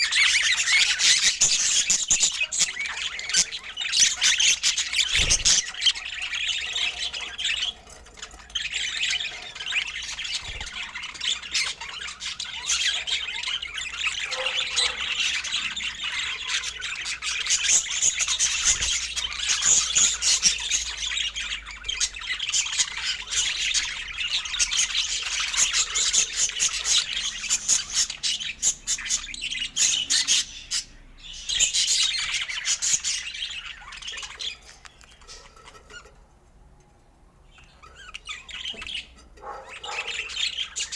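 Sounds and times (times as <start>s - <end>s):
budgerigar chattering: 37.8s - 40.9s.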